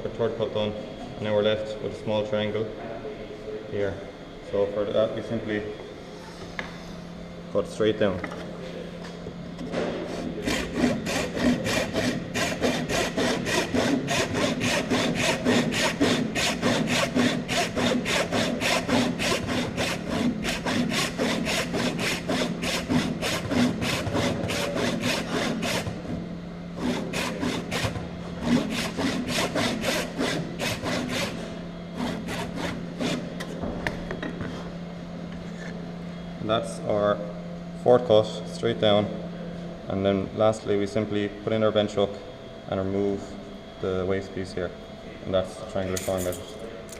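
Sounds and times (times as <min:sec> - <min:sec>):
hand saw cutting wood: 0:10.1 - 0:26.1, 0:26.8 - 0:31.4, 0:32.0 - 0:33.3.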